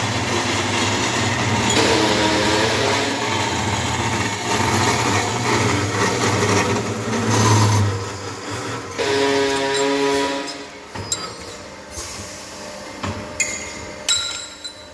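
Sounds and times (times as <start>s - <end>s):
metal cutting machine motor hum: 0.0s - 11.0s
metal cutting noise: 0.0s - 11.7s.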